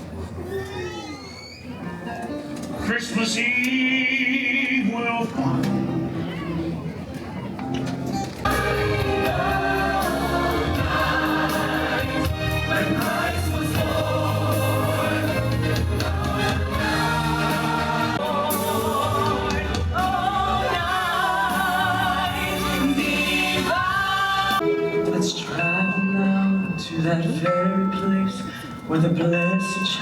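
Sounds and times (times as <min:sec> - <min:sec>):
choir singing over instrumental backing: 0:08.5 - 0:25.6.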